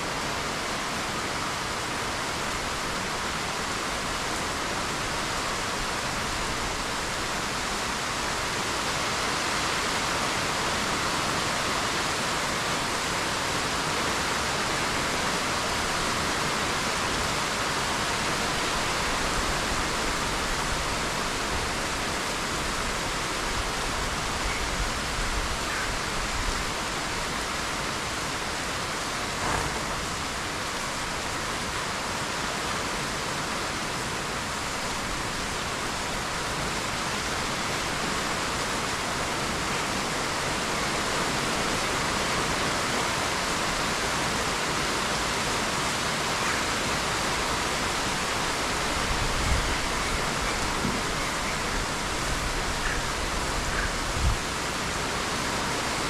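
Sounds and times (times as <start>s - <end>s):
rain falling on trees: 0.0s - 56.0s.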